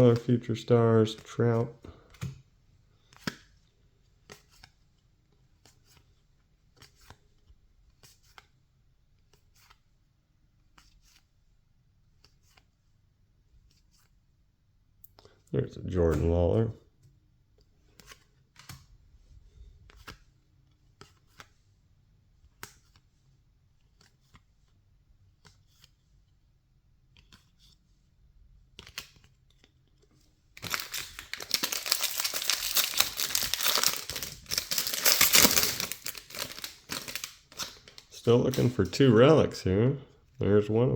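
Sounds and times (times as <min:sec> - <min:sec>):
card pack wrapper tearing and crinkling: 0:30.6 - 0:39.0.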